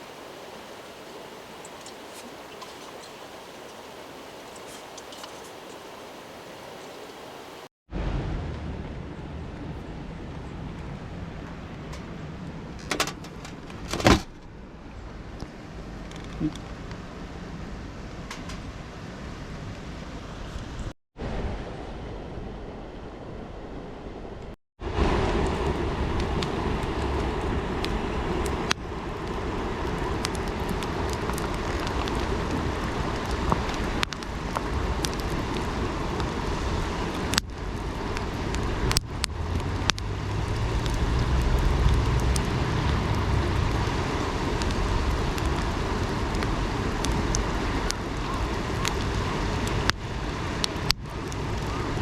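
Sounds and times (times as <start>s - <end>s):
campfire popping and crackling: 0.0s - 7.4s, 24.8s - 52.0s
river rushing: 0.0s - 8.1s, 24.8s - 52.0s
low rumble: 7.9s - 12.8s.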